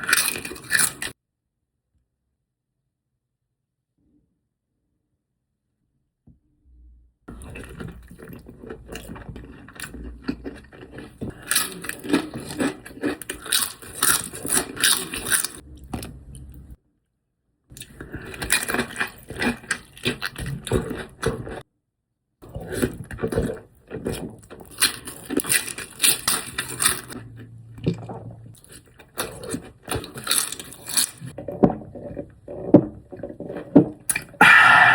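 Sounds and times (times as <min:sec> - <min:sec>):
wet crackly chewing: 0:07.3 - 0:16.7, 0:17.7 - 0:21.6, 0:22.4 - 0:34.9.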